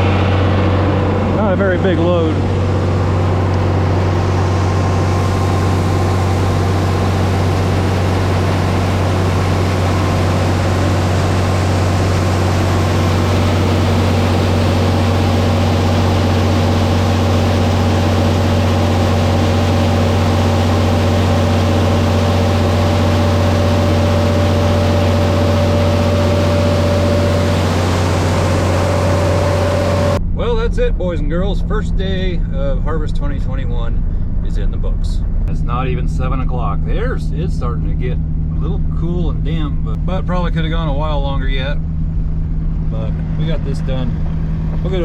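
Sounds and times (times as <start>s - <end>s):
farm machinery droning: 0.0s - 45.0s.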